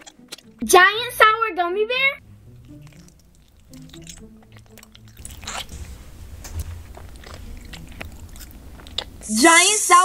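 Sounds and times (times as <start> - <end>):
sticky chewing sounds: 0.0 - 0.8, 2.2 - 9.4.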